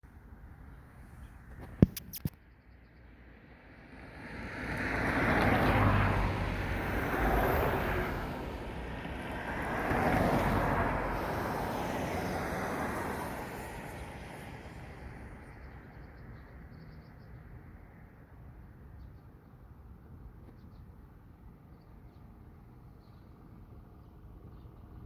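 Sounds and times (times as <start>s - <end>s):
airplane passing overhead: 3.5s - 16.0s.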